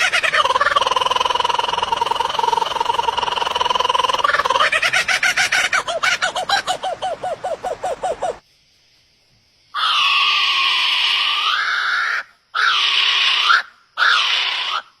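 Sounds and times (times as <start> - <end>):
bird screaming harshly: 9.8 - 14.9.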